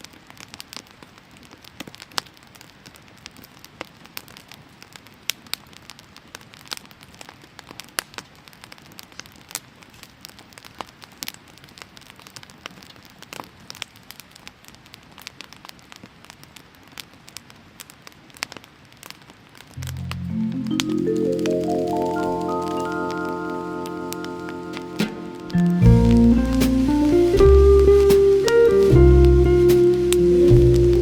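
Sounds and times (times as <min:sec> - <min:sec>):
faint steady hiss: 0:00.0 - 0:31.0
firewood crackling and popping: 0:00.4 - 0:20.0
music with mallet percussion: 0:19.8 - 0:31.0.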